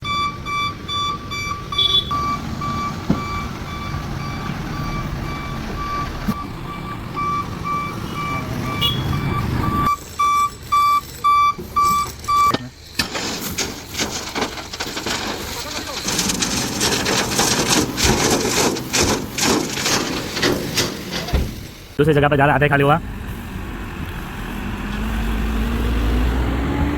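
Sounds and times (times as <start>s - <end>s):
reversing alarm beeping: 0.0s - 12.6s
diesel engine rumble: 0.0s - 26.9s.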